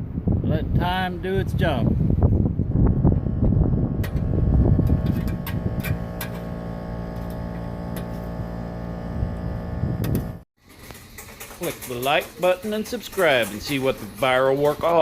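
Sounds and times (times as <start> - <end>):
rough low rumble: 1.9 - 10.4
steady mechanical hum: 2.6 - 15.0.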